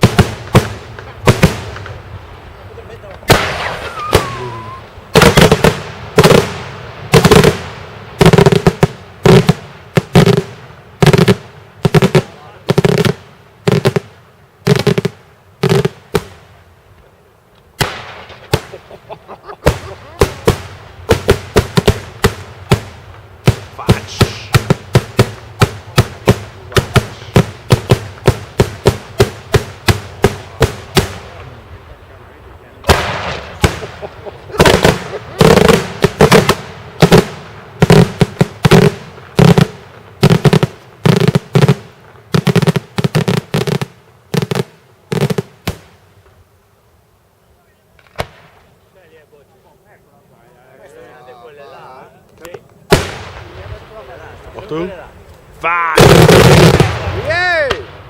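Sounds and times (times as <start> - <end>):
volleys of firework bangs: 0.0 - 46.5, 47.9 - 49.2, 52.4 - 58.0
firework bang: 3.0 - 14.0, 17.8 - 18.9, 32.8 - 41.8, 48.0 - 48.7, 52.9 - 54.3, 55.9 - 58.0
firework falling whistle: 3.4 - 5.0.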